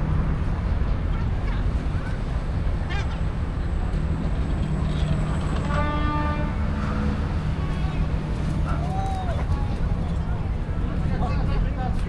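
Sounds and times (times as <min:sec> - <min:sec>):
low hum of traffic and engines: 0:00.0 - 0:12.0.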